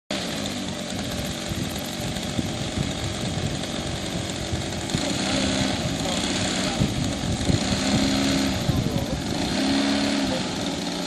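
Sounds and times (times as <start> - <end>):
model airplane motor running: 0.1 - 11.0
wind buffeting microphone: 0.9 - 10.3.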